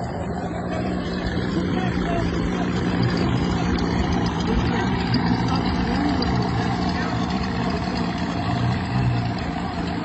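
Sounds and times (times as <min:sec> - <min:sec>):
engine running steadily: 0:00.0 - 0:10.0.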